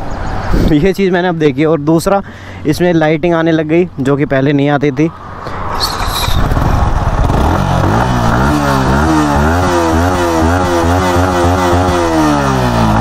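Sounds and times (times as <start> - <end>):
motorcycle engine revving in blips: 5.8 - 13.0.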